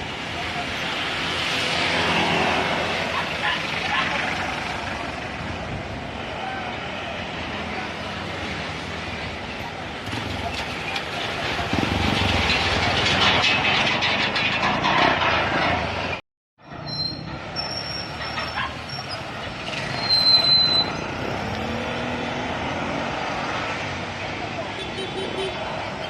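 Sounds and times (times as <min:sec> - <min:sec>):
traffic noise: 0:00.0 - 0:26.0
heavy truck rumbling past: 0:07.7 - 0:24.7
brakes squealing: 0:09.2 - 0:23.1.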